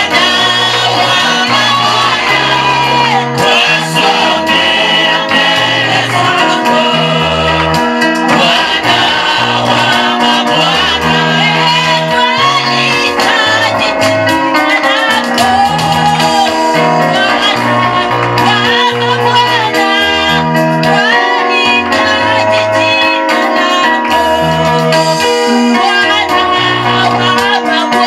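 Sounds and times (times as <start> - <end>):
bass line: 0.0 - 14.4
voices singing: 0.0 - 14.4.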